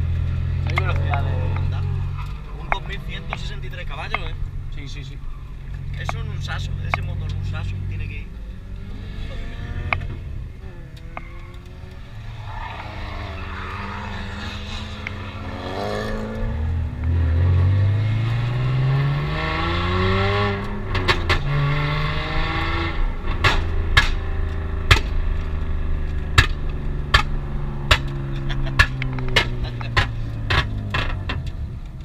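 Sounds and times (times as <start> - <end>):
car engine accelerating: 0.0 - 32.0
sharp knocks and clicks: 26.4 - 31.6.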